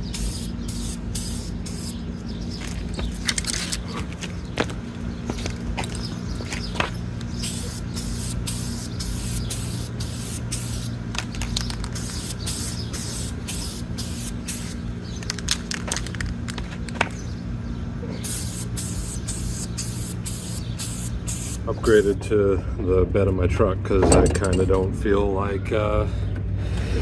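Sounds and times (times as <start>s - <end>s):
aerosol can spraying: 0.0s - 2.0s, 7.4s - 10.9s, 12.0s - 14.8s, 18.2s - 22.2s.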